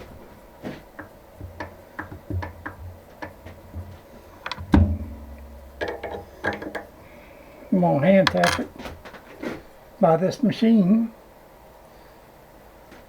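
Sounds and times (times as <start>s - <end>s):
metallic clicks of tools handled: 4.4s - 4.6s, 8.3s - 8.7s
loud metal clunk with low ring: 4.5s - 6.3s.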